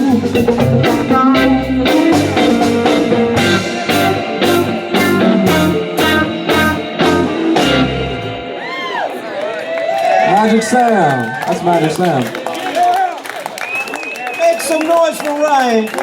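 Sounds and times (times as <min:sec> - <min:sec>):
blues band playing: 0:00.0 - 0:10.7
electric guitar: 0:00.0 - 0:10.7.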